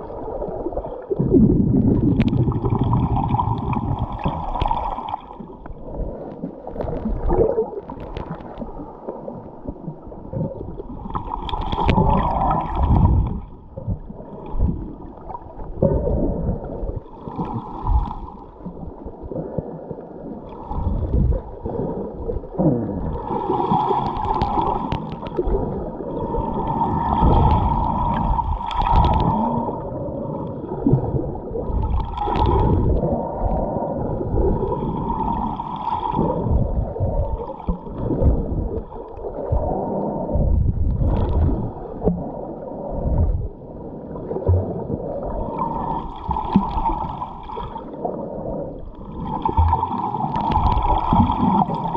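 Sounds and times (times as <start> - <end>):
bubbles gurgling: 0.0 - 51.9
low underwater rumble: 0.0 - 51.9.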